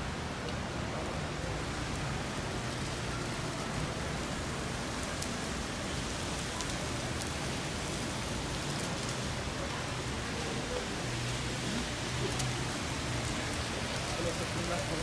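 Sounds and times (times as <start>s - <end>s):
heavy rain on pavement: 0.0s - 15.0s
single raindrops ticking: 12.1s - 15.0s.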